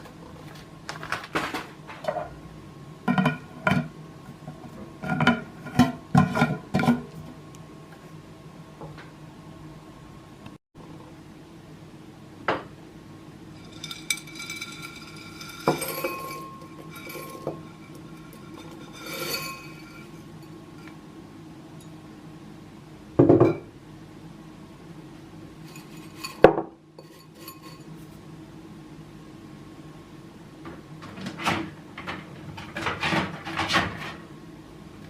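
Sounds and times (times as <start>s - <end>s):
glass jars clinking: 13.6s - 20.2s.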